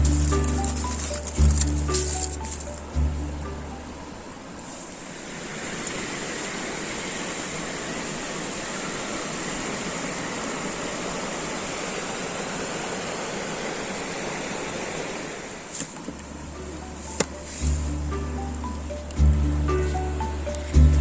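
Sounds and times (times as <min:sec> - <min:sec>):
low steady tone: 0:00.0 - 0:05.0, 0:16.4 - 0:21.0.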